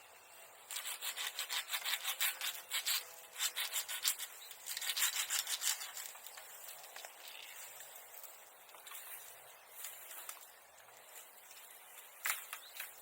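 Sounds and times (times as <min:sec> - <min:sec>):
hand saw cutting wood: 0:00.7 - 0:06.1.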